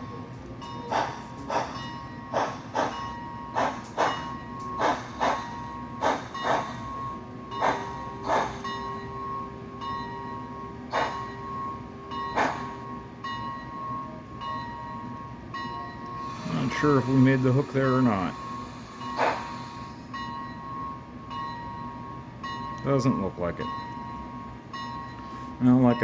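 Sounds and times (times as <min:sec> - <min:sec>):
model train steam chuffs: 0:00.9 - 0:09.0, 0:10.9 - 0:11.3, 0:16.2 - 0:20.1.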